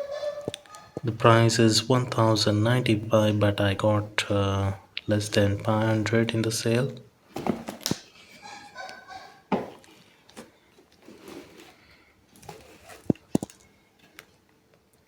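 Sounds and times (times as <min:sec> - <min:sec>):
cardboard box clicks and knocks: 0:07.3 - 0:08.0.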